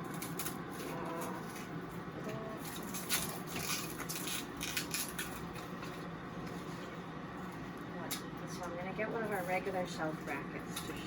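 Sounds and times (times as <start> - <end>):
packaging crinkling and rustling: 0.0 - 7.0.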